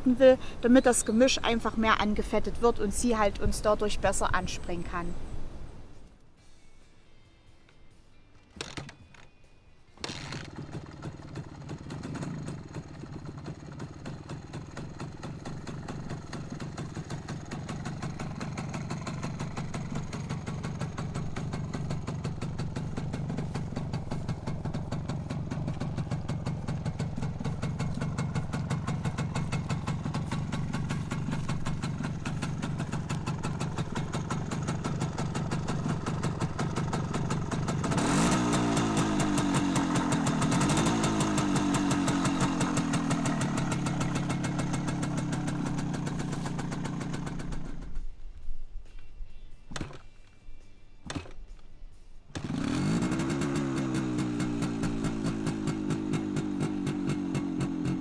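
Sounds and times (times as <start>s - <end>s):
two-stroke engine idling and revving: 10.0s - 48.0s, 52.3s - 58.0s.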